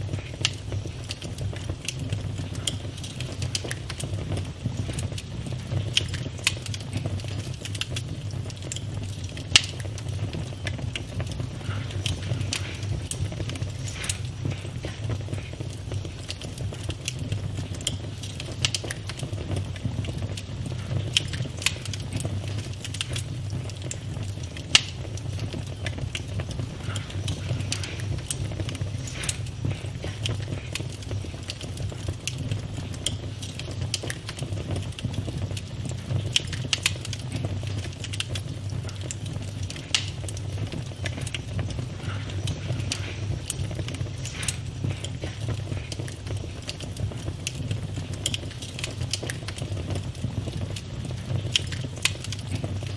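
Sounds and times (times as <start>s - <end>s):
campfire crackling and popping: 0.0s - 52.9s.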